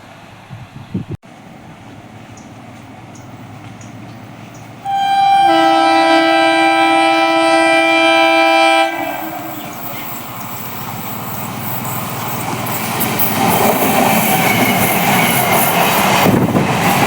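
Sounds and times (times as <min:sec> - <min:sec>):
train running on rails: 0:00.0 - 0:17.0
train air horn: 0:04.8 - 0:10.2.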